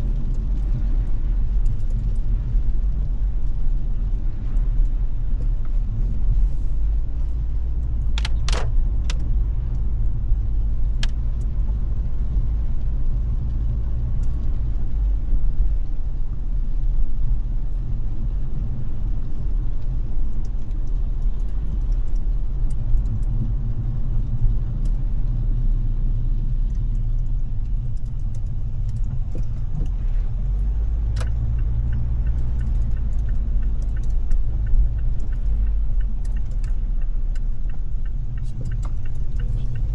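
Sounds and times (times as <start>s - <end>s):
car engine and road noise: 0.0s - 39.9s
sharp clicks: 7.8s - 9.8s.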